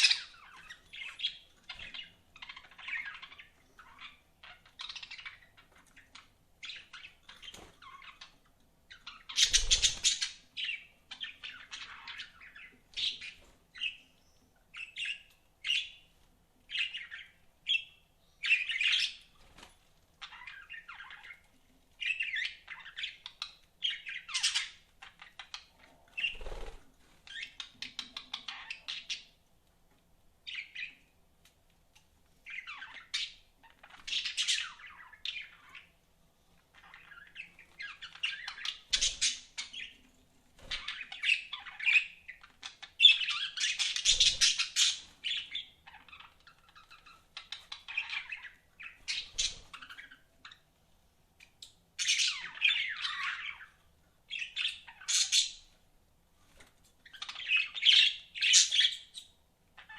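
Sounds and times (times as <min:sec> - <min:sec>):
budgerigars chirping: 0:40.7 - 0:50.6, 0:57.1 - 0:59.9.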